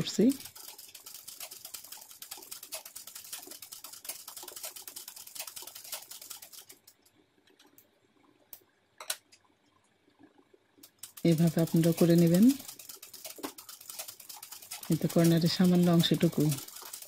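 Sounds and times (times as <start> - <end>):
sewing machine clicking: 10.8 - 17.0.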